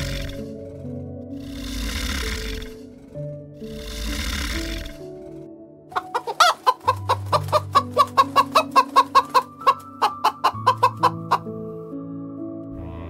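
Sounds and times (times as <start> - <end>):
background music with held notes: 0.0 - 13.0
bird calling: 5.9 - 11.5.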